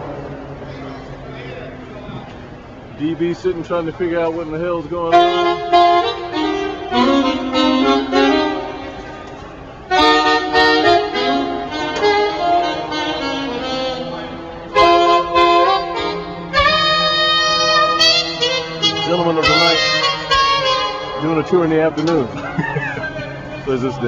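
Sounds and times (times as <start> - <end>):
saxophone playing long notes: 5.0 - 22.3.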